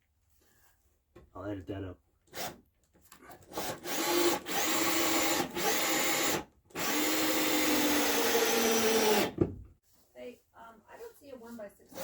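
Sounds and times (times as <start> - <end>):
power drill running: 3.4 - 9.4.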